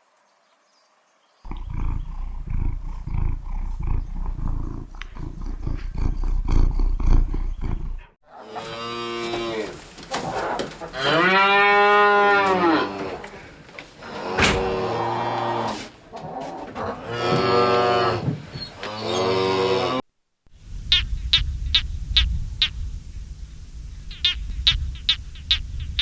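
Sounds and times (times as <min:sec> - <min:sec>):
low pulsing rumble: 0:01.5 - 0:08.0, 0:20.6 - 0:26.0.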